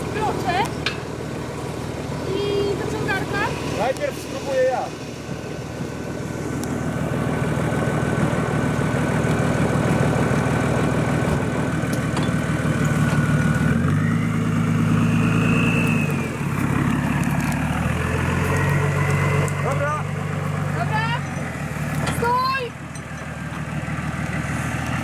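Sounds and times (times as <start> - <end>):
off-road vehicle engine revving: 0.0 - 25.0
high whine climbing in pitch: 12.3 - 20.1.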